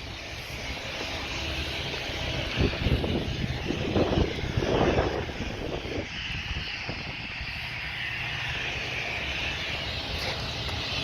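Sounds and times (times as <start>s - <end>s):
diesel engine running: 0.0s - 11.0s
rumbling bursts: 0.0s - 11.0s.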